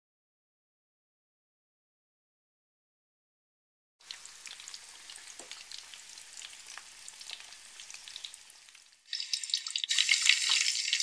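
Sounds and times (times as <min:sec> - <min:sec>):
chicken frying in hot oil: 0:04.0 - 0:11.0.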